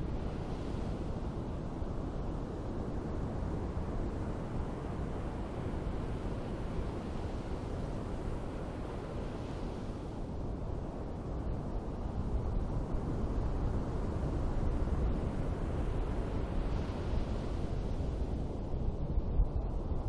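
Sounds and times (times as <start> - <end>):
ocean waves on a beach: 0.0 - 11.4, 12.1 - 19.0.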